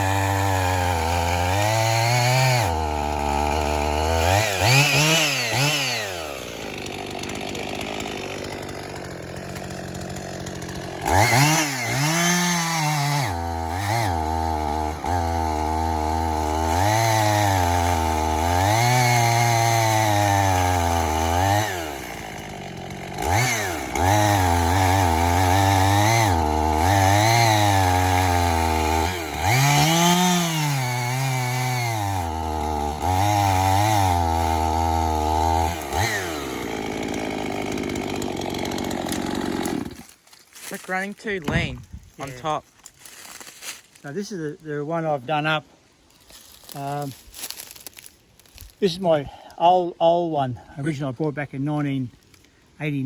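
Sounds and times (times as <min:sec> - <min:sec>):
chainsaw engine revving: 0:00.0 - 0:40.2, 0:41.4 - 0:42.3.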